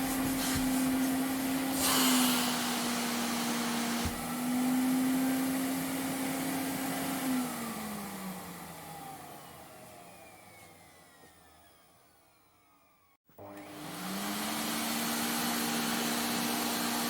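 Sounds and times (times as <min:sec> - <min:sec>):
vacuum cleaner motor: 0:00.0 - 0:17.0.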